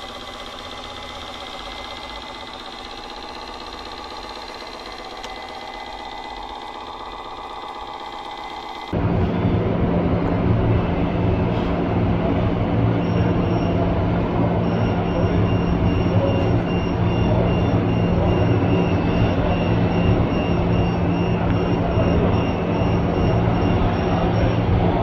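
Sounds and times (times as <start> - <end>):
machine mechanical din: 0.0 - 25.0
repeating high beep: 14.5 - 25.0.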